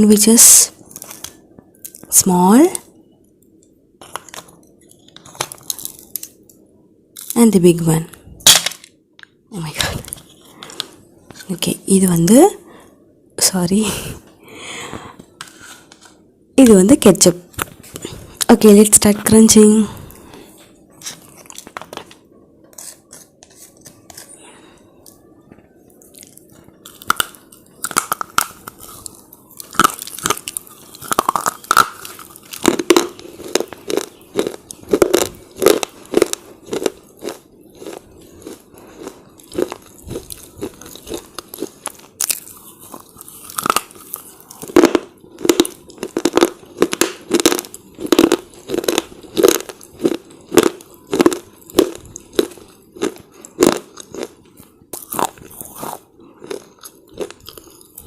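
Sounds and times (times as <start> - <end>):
person biting brittle chips: 4.0 - 6.5, 26.0 - 58.0
chewing crunch: 26.0 - 58.0.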